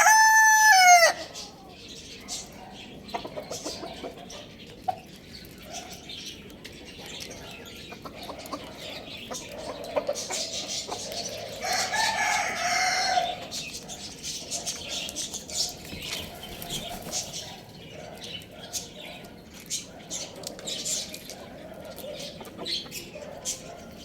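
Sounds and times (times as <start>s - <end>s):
rooster crowing: 0.0s - 1.3s, 11.6s - 13.5s
chickens clucking: 0.0s - 24.0s.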